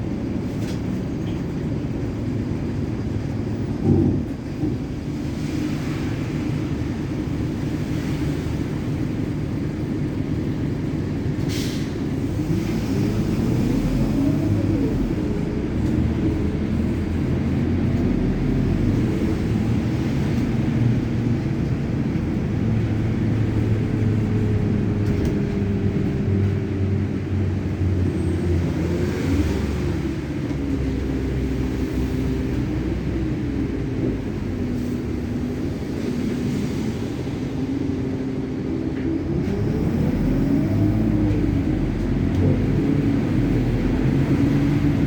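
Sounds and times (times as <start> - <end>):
steady low traffic rumble: 0.0 - 45.0
vehicle engines running: 0.0 - 45.0.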